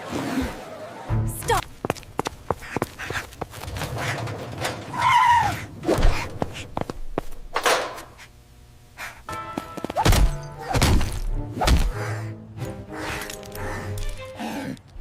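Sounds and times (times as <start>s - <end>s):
background music: 9.3s - 15.0s.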